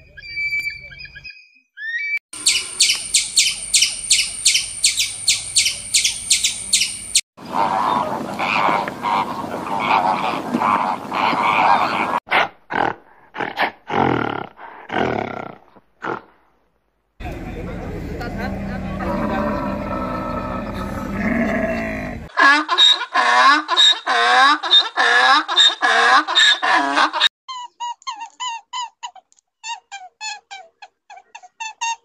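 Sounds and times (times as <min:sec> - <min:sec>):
sharp animal calls: 0:00.2 - 0:14.1.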